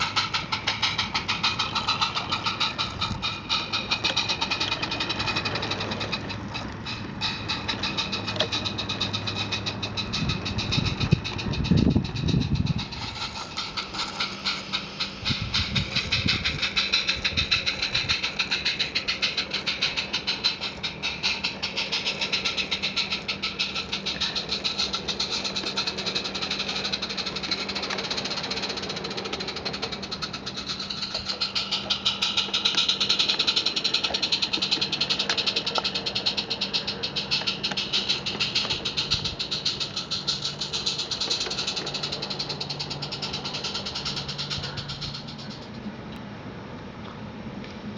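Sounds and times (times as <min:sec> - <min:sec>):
steady low hum: 0:00.0 - 0:47.9
steam locomotive chuffing: 0:00.0 - 0:47.9
low rumbling thumps: 0:09.4 - 0:13.1.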